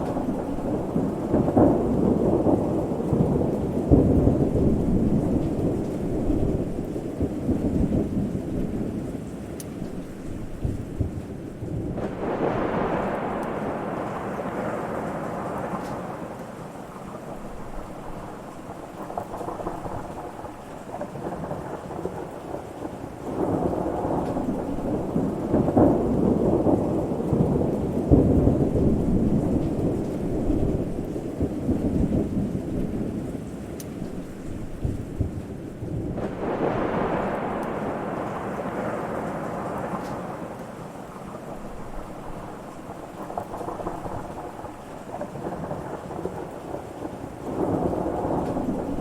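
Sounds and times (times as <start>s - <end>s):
sharp thunder claps: 0.0s - 9.1s, 10.6s - 33.2s, 33.9s - 49.0s
steady rain: 0.0s - 49.0s
thunder rumbling: 0.0s - 49.0s.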